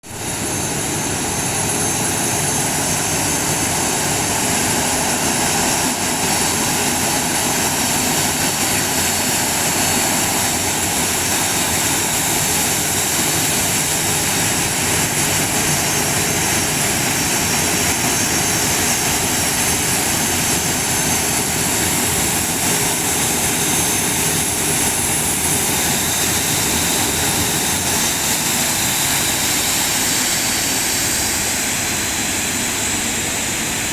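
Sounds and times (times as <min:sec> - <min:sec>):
airliner engines running: 0:00.0 - 0:33.9.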